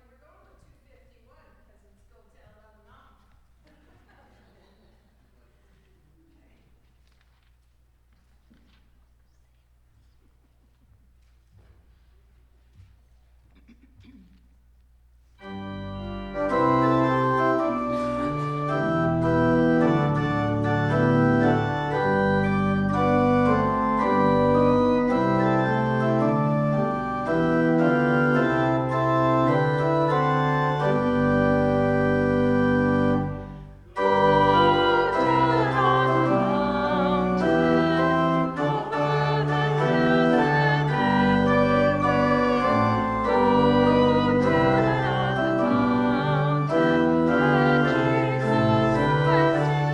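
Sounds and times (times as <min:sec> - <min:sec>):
organ playing held chords: 0:15.4 - 0:49.9.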